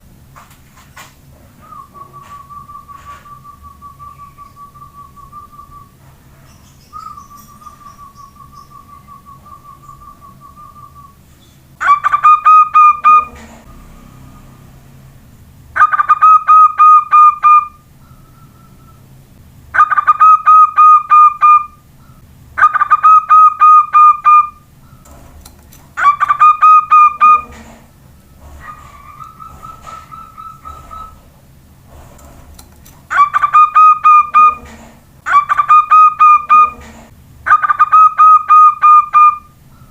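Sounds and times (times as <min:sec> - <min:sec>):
dove cooing: 0:01.4 - 0:06.0, 0:11.8 - 0:14.6, 0:26.0 - 0:31.3, 0:33.1 - 0:39.5
soft trilled whistling: 0:01.6 - 0:06.0, 0:06.9 - 0:11.2, 0:16.0 - 0:19.0.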